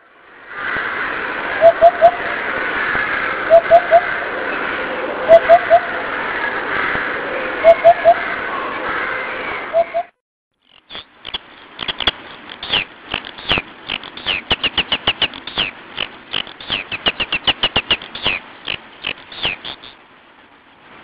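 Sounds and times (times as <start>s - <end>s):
small bird chirping rapidly: 10.6s - 20.0s.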